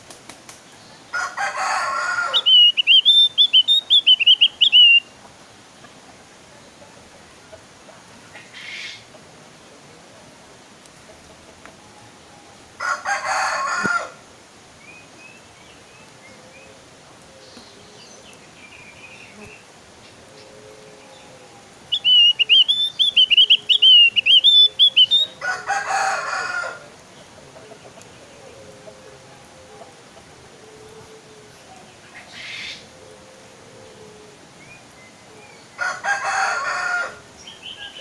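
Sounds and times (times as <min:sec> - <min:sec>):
harsh bird calls: 0:00.8 - 0:05.2, 0:08.3 - 0:09.1, 0:14.9 - 0:28.7, 0:32.0 - 0:32.9
bird warbling song: 0:02.2 - 0:05.2, 0:14.8 - 0:25.4, 0:37.4 - 0:38.0.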